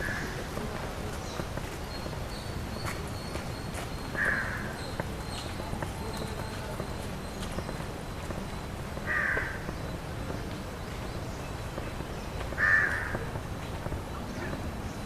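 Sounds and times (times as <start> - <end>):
crow cawing: 4.2 - 4.8, 9.0 - 9.6, 12.6 - 13.3.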